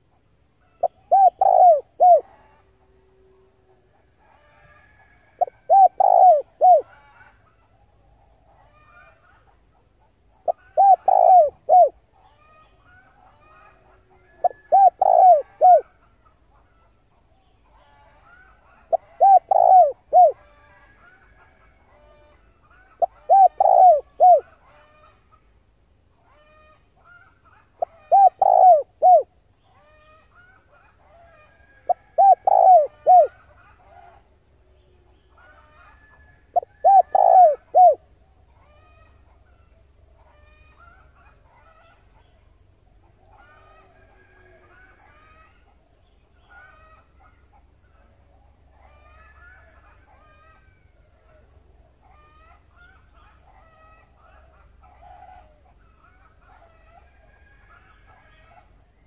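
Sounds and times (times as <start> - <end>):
faint small birds chirping: 0.0 - 59.0
dove cooing: 0.8 - 2.5, 4.3 - 7.1, 10.4 - 12.6, 13.3 - 15.9, 18.7 - 21.2, 23.0 - 24.8, 27.8 - 30.2, 31.2 - 34.2, 35.4 - 39.4.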